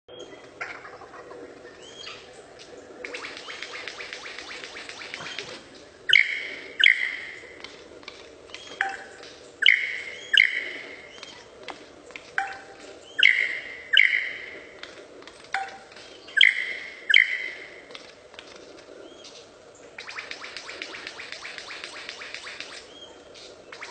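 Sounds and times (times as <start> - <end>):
bird calling ringing notes: 3.0 - 7.6, 8.5 - 11.5, 12.4 - 14.8, 15.6 - 17.9.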